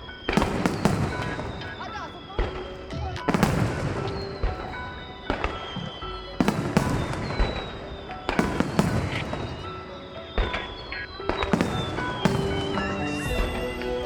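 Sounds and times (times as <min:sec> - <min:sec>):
fireworks bursting with crackle: 0:00.0 - 0:14.0
music playing: 0:00.0 - 0:14.0.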